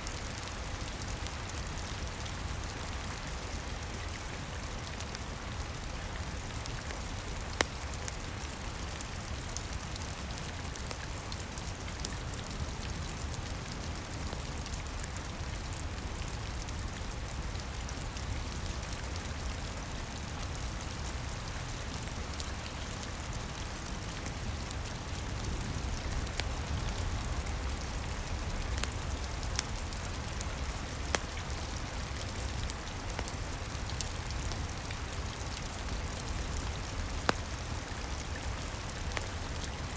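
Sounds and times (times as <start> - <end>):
rain patter: 0.0 - 39.9
wood fire popping: 25.8 - 38.2.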